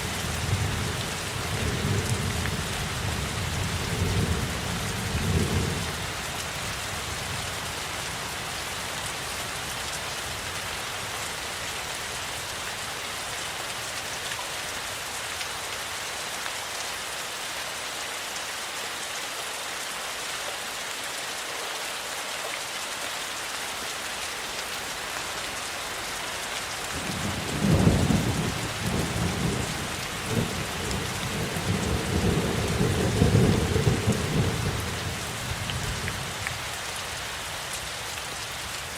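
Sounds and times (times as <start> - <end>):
steady rainfall: 0.0 - 38.9
thunder rumbling: 27.0 - 35.2.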